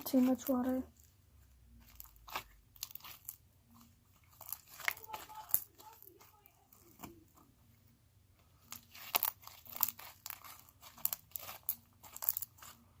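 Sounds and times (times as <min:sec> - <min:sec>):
slime squished by hand: 0:04.3 - 0:07.2.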